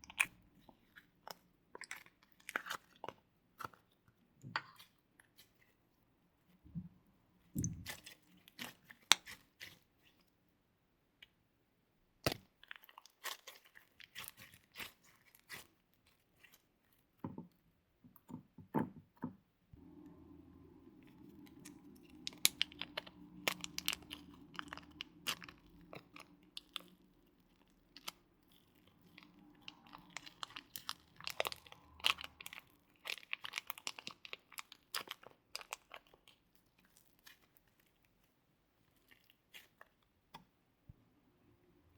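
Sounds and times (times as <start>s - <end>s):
slime squished by hand: 7.5s - 10.2s, 20.9s - 40.5s
low steady hum: 19.7s - 34.3s.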